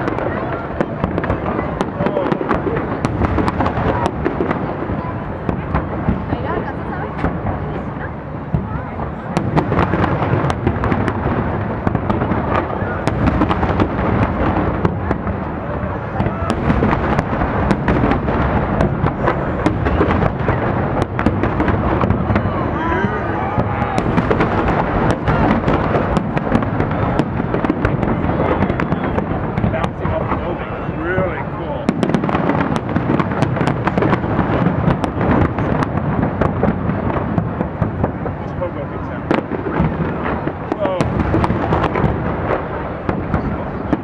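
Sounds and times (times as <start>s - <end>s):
fireworks crackles and pops: 0.0s - 44.0s
rolling rumble of booms: 0.0s - 44.0s
fireworks shell bursts rumbling: 9.4s - 22.5s, 23.6s - 30.6s.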